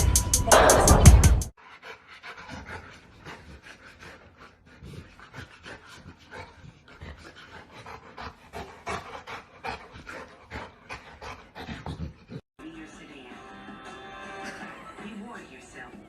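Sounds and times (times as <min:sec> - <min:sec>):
dog panting: 0:01.6 - 0:12.4.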